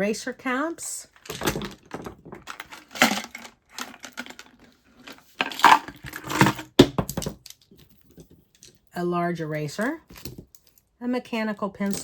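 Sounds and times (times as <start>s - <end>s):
plastic school supplies clicking: 1.2s - 6.6s.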